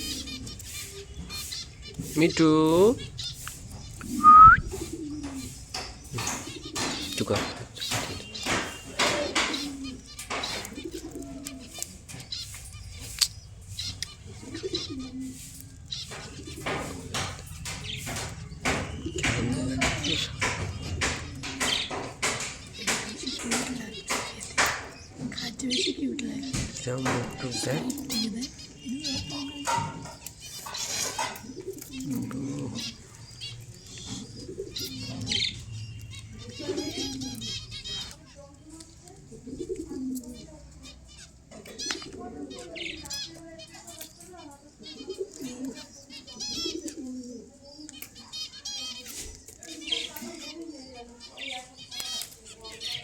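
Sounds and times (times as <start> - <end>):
pet birds low dipping call: 0.0 - 53.0
faint high bird chirps: 3.1 - 7.2, 7.8 - 39.0.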